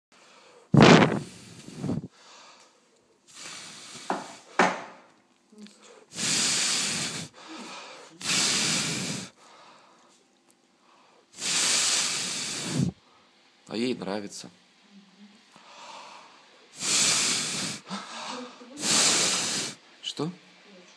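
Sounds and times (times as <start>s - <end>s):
bursts of blown air hissing: 0.7s - 2.2s, 3.3s - 4.5s, 6.1s - 9.4s, 11.3s - 13.0s, 16.7s - 19.9s.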